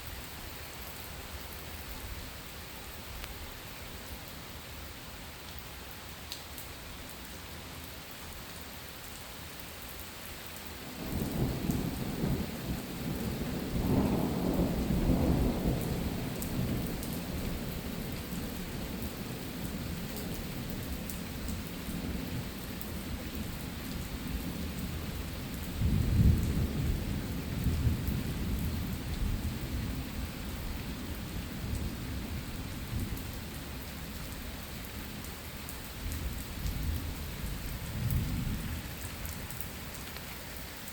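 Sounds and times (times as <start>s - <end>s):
steady rain falling: 0.0s - 40.9s
thunder rumbling: 11.0s - 17.9s, 25.8s - 30.2s, 36.2s - 39.1s.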